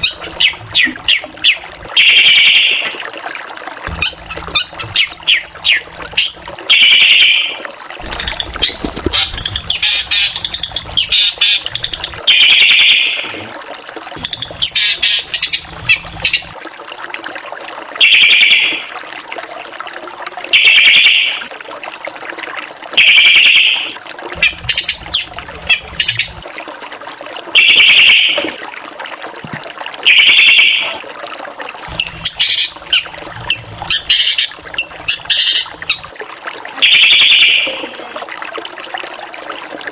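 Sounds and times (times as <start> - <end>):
bird singing and chattering: 0.0 - 2.8, 4.0 - 7.4, 8.0 - 13.2, 14.2 - 16.5, 24.4 - 26.4, 31.9 - 36.0.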